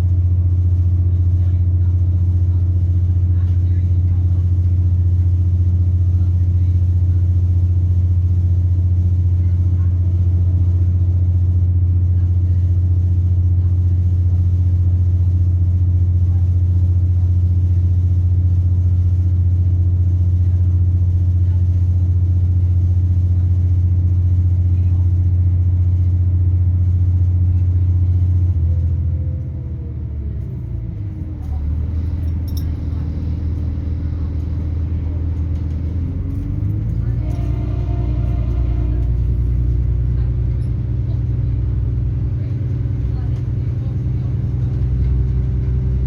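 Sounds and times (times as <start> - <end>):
train diesel engine drone: 22.5 - 46.0.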